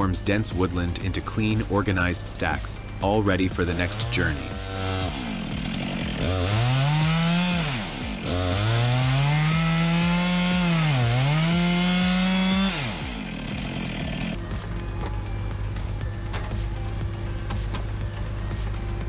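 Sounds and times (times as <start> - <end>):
chainsaw engine revving: 3.0 - 14.4.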